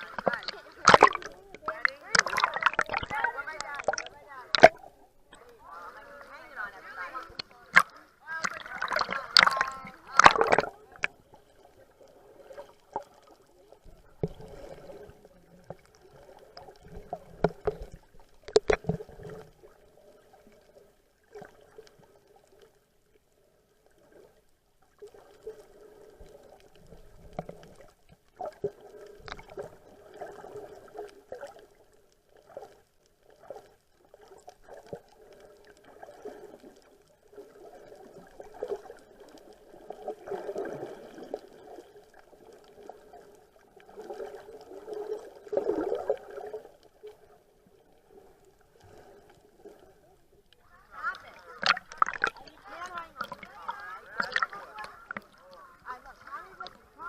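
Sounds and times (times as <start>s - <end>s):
water sloshing around boat: 0.0s - 11.5s, 48.1s - 57.0s.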